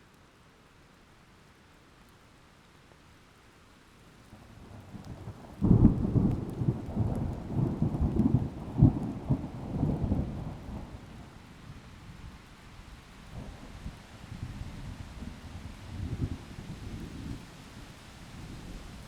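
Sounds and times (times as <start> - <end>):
rain: 0.0 - 19.0.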